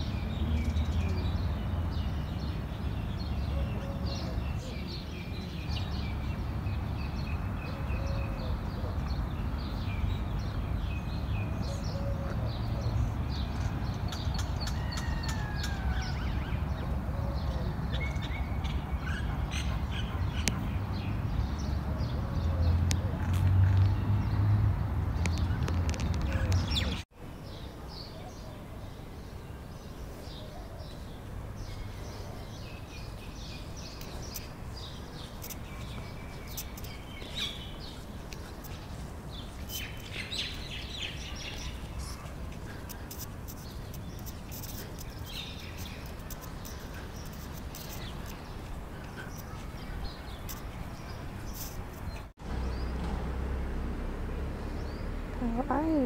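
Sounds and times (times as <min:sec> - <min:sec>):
small birds chirping: 0:25.2 - 0:53.1
outdoor background rumble: 0:31.1 - 0:56.0.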